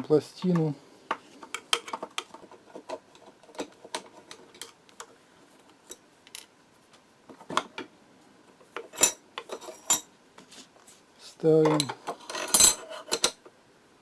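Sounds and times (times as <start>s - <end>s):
screwdriver and metal plate clinking: 11.6s - 13.4s.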